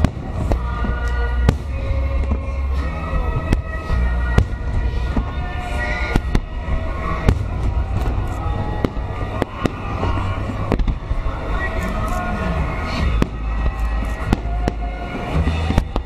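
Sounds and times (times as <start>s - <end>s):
low rumble of booms: 0.0s - 11.8s
fireworks bangs: 0.0s - 16.0s.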